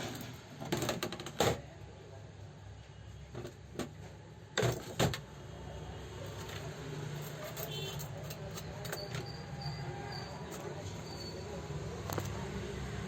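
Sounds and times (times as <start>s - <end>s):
metal tools clicking and knocking: 6.2s - 9.5s.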